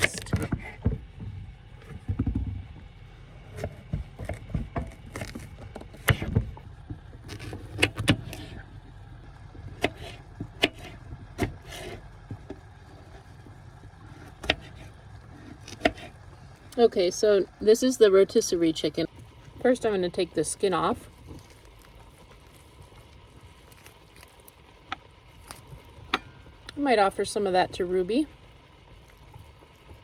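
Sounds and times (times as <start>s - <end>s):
low steady rumble: 0.0s - 30.0s
knife cutting on cutting board: 9.8s - 12.0s.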